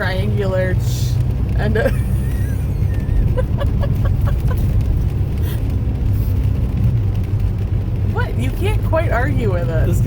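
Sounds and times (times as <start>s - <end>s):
car cabin rumble on road: 0.0s - 10.0s
person laughing: 1.8s - 4.8s.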